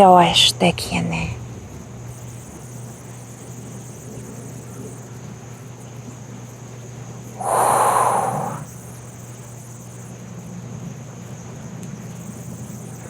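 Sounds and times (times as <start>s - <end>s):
person breathing out: 7.4s - 8.7s.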